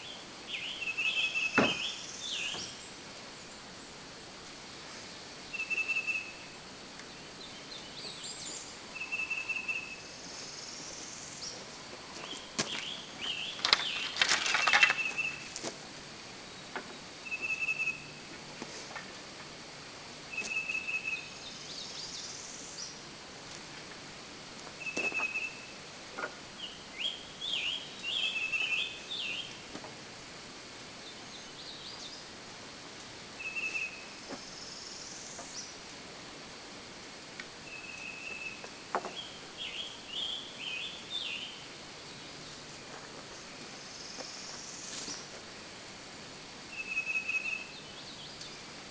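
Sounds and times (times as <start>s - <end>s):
quick bird chirping: 12.2s - 15.5s.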